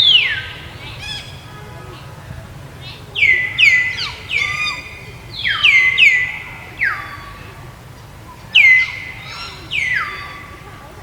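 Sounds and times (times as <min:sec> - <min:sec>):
high downward-sliding animal calls: 0:08.5 - 0:10.7.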